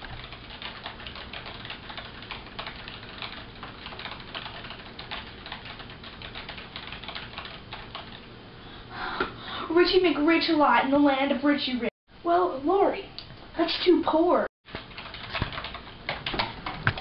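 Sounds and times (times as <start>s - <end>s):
computer keyboard typing: 0.0s - 8.3s, 14.7s - 17.0s.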